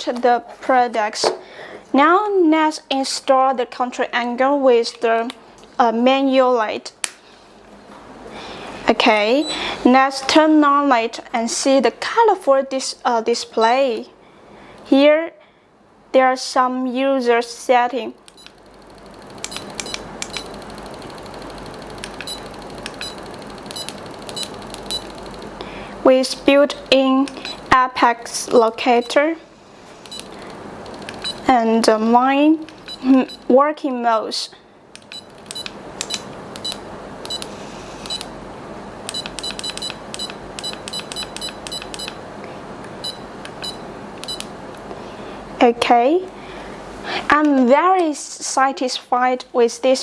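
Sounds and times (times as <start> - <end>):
short electronic beeps: 22.2 - 25.1, 43.0 - 44.4.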